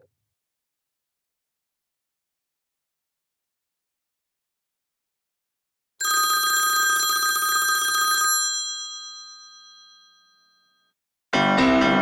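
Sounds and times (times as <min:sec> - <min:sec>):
old telephone bell ringing: 0:06.0 - 0:10.8.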